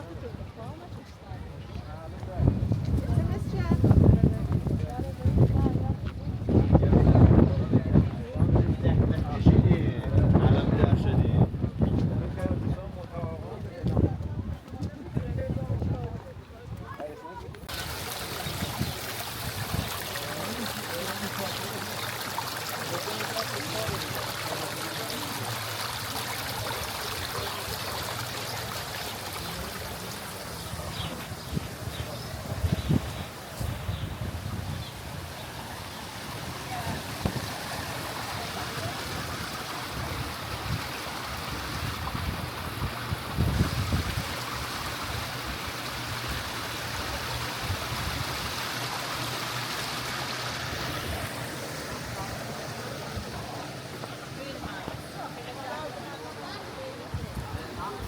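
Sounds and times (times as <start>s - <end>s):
running water rushing: 17.6s - 58.0s.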